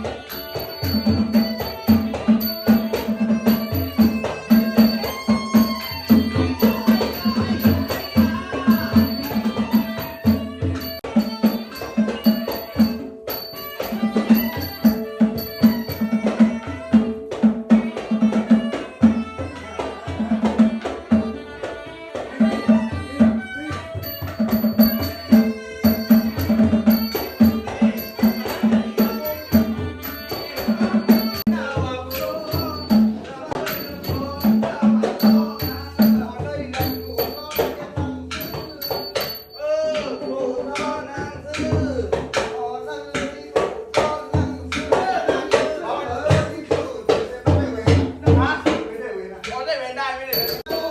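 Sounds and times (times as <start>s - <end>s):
small cymbals clinking: 0.0s - 19.0s, 23.8s - 45.5s, 46.3s - 50.9s
fast driving drum strokes: 0.0s - 21.4s, 40.0s - 49.7s
held melodic tones: 0.0s - 50.9s.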